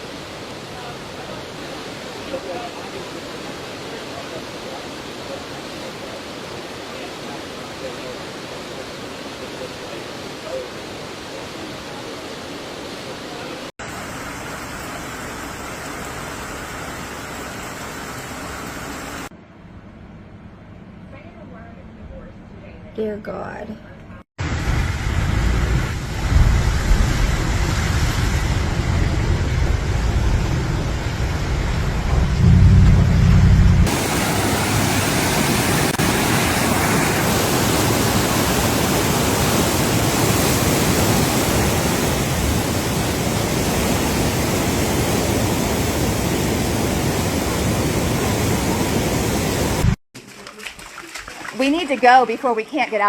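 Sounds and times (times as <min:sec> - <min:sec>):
low rumble: 0:24.4 - 0:35.0
loud rushing noise: 0:24.4 - 0:38.6.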